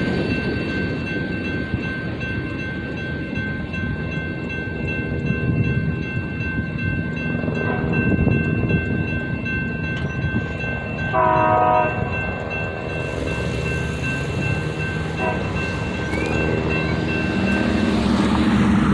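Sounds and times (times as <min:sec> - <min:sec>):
freight train rumbling past: 0:00.0 - 0:18.9
locomotive horn blast: 0:11.1 - 0:12.1, 0:15.2 - 0:15.8.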